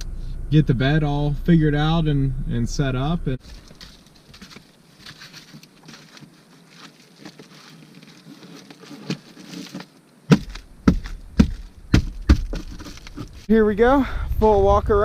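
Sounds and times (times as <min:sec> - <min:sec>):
gear rustling and clicking: 0:03.4 - 0:13.5
sharp knocks and thumps: 0:08.4 - 0:13.5.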